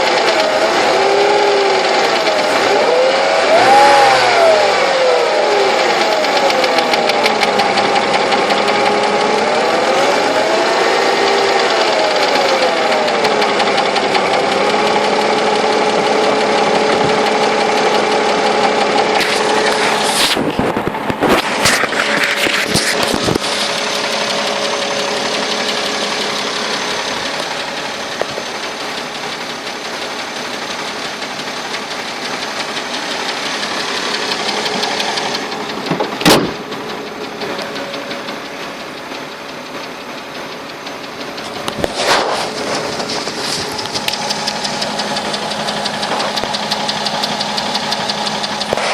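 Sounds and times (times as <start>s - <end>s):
petrol engine running with a knock: 0.0s - 48.9s.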